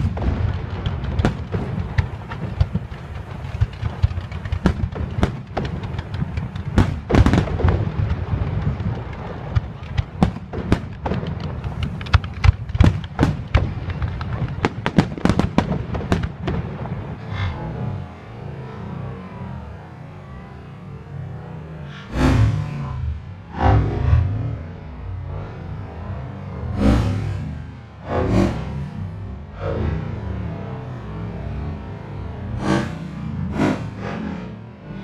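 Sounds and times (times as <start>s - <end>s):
fireworks bangs and cracks: 0.0s - 17.6s
low rumble: 0.0s - 35.0s.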